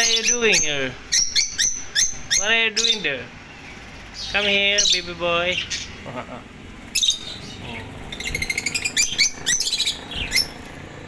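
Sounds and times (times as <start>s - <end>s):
lovebirds chirping: 0.0s - 11.0s.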